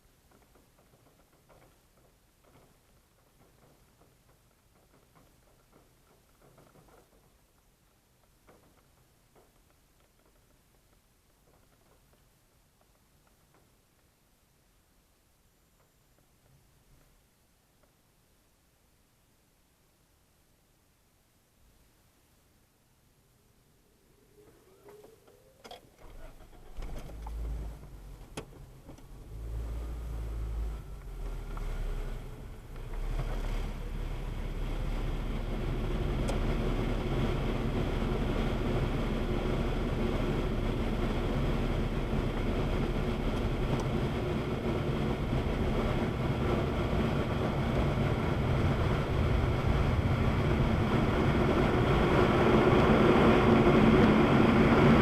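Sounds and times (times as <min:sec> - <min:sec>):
rushing noise with low hum: 0:23.8 - 0:55.0.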